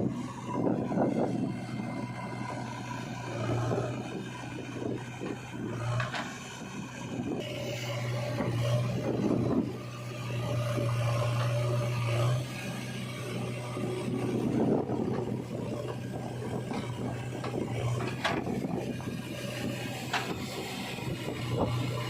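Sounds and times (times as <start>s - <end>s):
heavy diesel engine humming: 0.0s - 22.0s
machinery scraping in mud: 0.1s - 22.0s.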